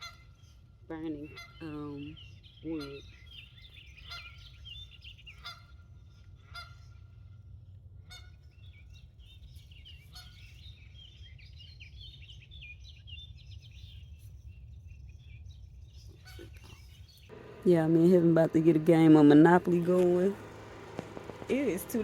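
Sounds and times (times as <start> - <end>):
geese honking: 0.0 - 0.4, 1.0 - 2.1, 4.0 - 4.5, 5.3 - 7.1, 8.0 - 8.4, 17.3 - 22.0
birds chirping: 0.0 - 7.4, 8.1 - 22.0
low wind rumble: 0.0 - 22.0.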